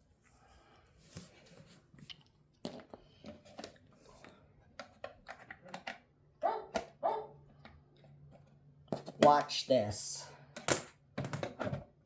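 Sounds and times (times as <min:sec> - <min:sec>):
plastic parts clicking: 0:04.8 - 0:06.0.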